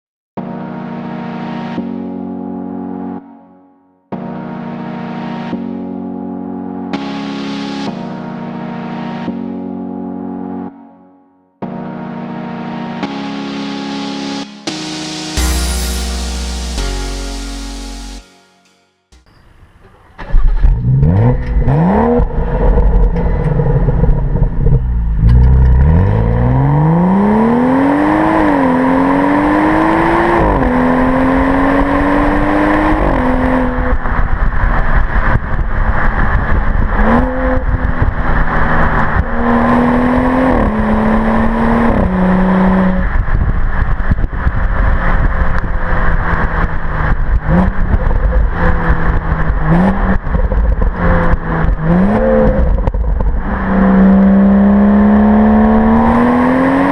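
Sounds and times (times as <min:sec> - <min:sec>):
wind and road noise: 0:19.2 - 0:56.9
car exhaust revving and accelerating: 0:20.2 - 0:56.9.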